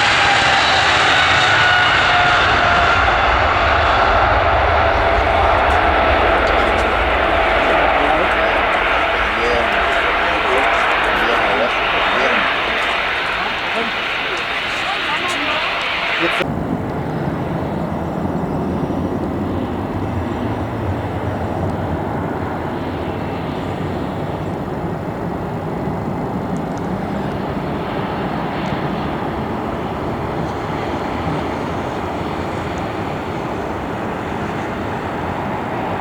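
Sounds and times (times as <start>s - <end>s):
aircraft engines rumbling: 0.0s - 36.0s.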